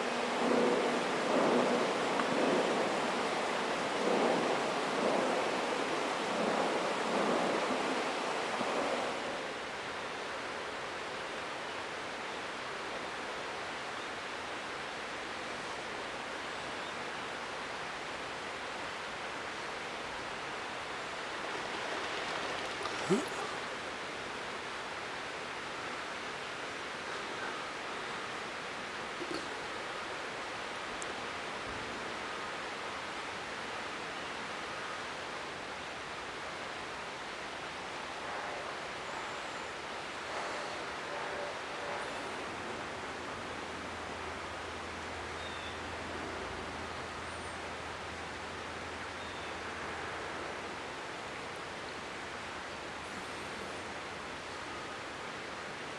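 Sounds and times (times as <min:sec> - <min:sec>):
steady rushing noise: 0:00.0 - 0:10.5
river water rushing: 0:00.0 - 0:55.9.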